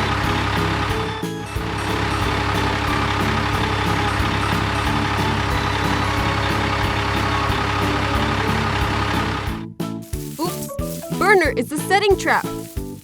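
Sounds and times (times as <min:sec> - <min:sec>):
truck engine running: 0:00.0 - 0:09.6
background music with melody: 0:00.0 - 0:13.0.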